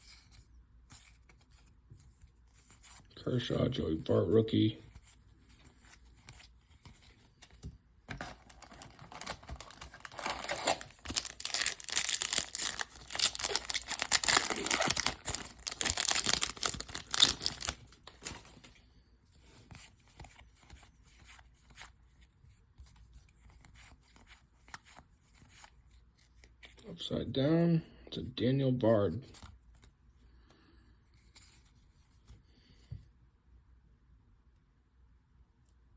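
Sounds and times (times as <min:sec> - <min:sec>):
wrapper tearing and crumpling: 0:08.3 - 0:18.5.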